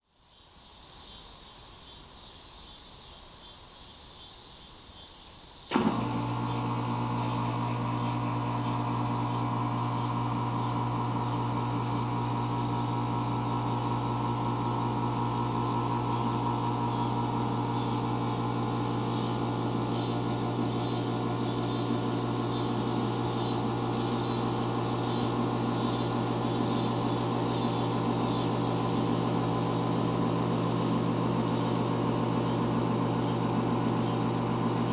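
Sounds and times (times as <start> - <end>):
heat pump switch click: 5.7 - 28.6
compressor humming: 5.7 - 34.9.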